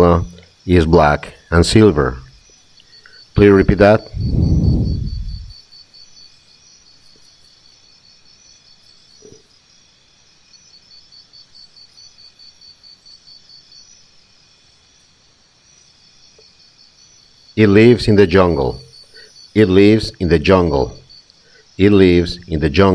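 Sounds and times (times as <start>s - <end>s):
faint crickets chirping: 0.0s - 22.9s.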